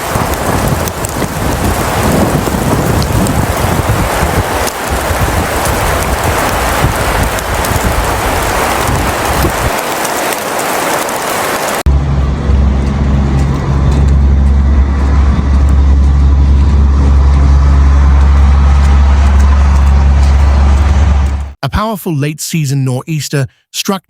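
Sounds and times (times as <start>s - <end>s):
storm noise hiss: 0.0s - 12.8s
low rumble with hum: 11.9s - 21.6s.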